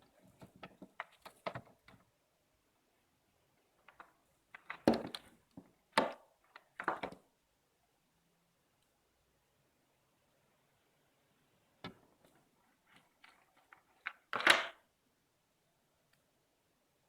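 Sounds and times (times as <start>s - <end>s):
small clicks and taps: 3.8s - 7.2s.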